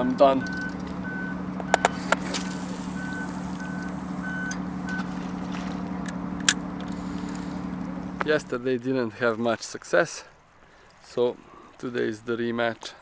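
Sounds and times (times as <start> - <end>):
reversing alarm beeping: 0.0 - 8.5
truck engine running: 0.0 - 8.6.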